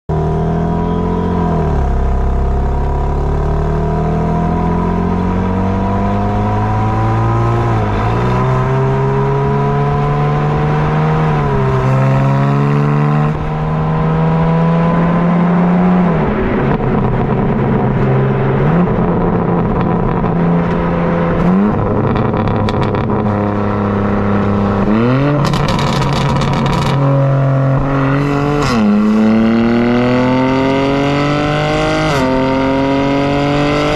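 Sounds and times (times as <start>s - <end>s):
car exhaust accelerating: 0.1s - 33.9s
exhaust crackles: 16.2s - 29.3s.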